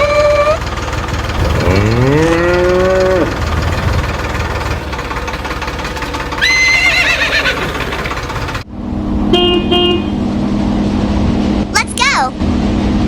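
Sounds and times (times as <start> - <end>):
rumbling engine hum: 0.0 - 13.0
horse whinnying: 6.4 - 8.0
vehicle horn honking: 9.2 - 10.3.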